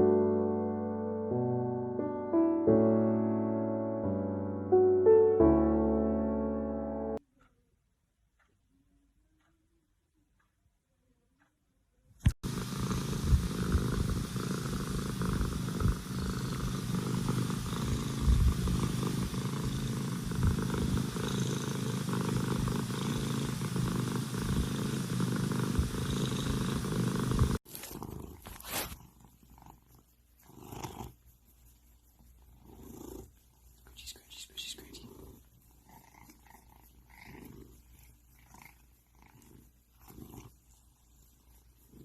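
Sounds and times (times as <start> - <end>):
cat purring: 12.3 - 42.0.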